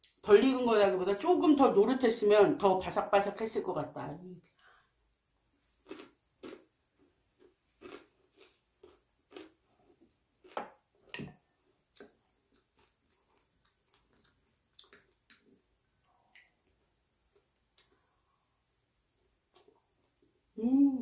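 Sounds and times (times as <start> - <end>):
crisp crunches of chewing: 5.8 - 6.6, 7.4 - 10.6, 12.0 - 15.6.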